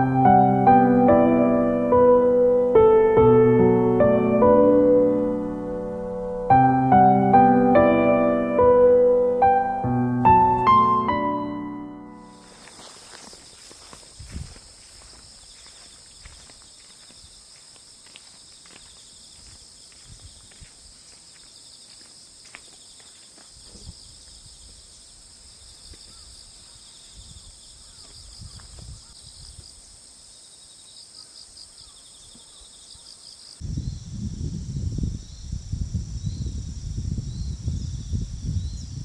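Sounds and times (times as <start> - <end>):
insects chirping: 10.2 - 39.0.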